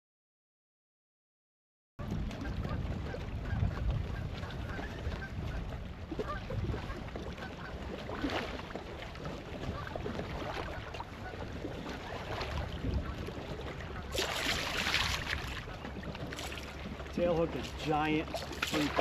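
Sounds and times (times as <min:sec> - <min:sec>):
water lapping against kayak: 0:02.0 - 0:19.0
loud splash: 0:14.0 - 0:16.8, 0:17.4 - 0:19.0.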